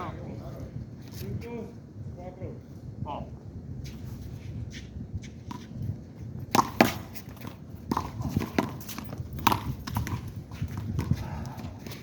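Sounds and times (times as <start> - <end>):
handball smacking wall and court: 6.5 - 12.0.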